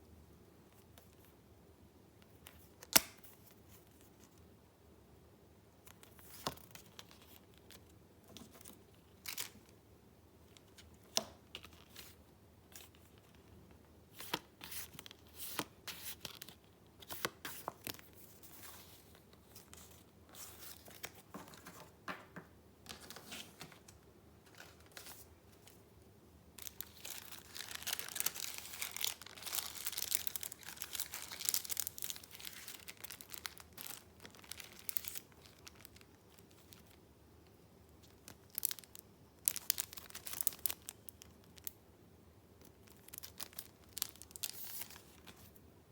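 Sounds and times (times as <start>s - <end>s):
paper rustling: 14.2s - 22.3s, 22.9s - 25.8s, 26.6s - 35.9s
paper crinkling: 22.9s - 25.8s, 26.6s - 37.0s, 42.8s - 45.6s.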